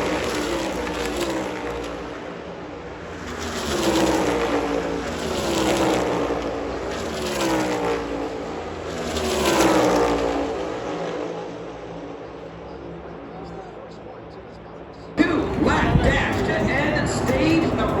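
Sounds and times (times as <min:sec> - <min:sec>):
race cars passing at full throttle: 0:00.0 - 0:18.0.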